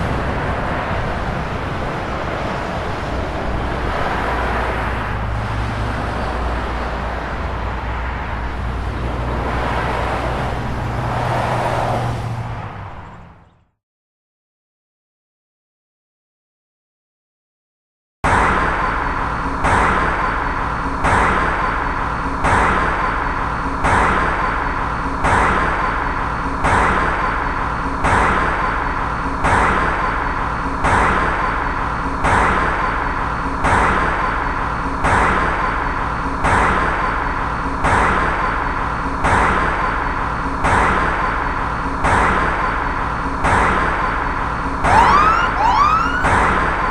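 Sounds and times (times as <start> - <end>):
passing car: 0.0 - 13.7, 44.7 - 46.9.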